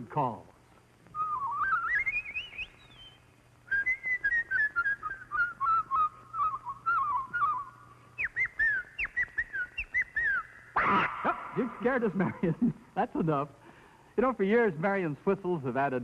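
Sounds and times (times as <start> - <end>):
woman whistling bird calls: 1.2 - 11.1.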